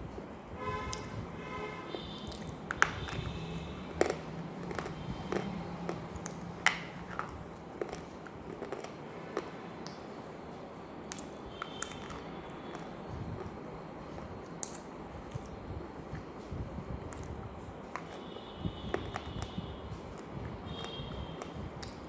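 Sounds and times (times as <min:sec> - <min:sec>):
chewing crunchy food: 0:02.2 - 0:10.1, 0:11.1 - 0:16.4, 0:17.0 - 0:18.3, 0:18.9 - 0:22.0.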